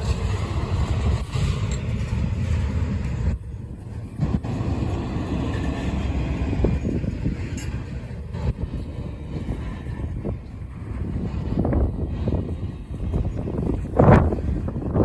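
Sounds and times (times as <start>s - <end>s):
freight train wheels rumbling: 0.0s - 15.0s
train cars clunking: 0.0s - 15.0s.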